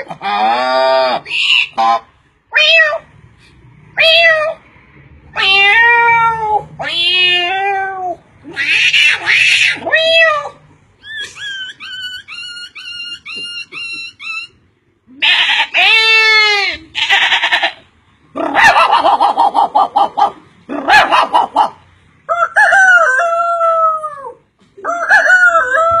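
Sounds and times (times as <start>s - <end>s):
bleat-like calls: 15.1s - 17.8s
rooster crowing: 22.3s - 23.9s.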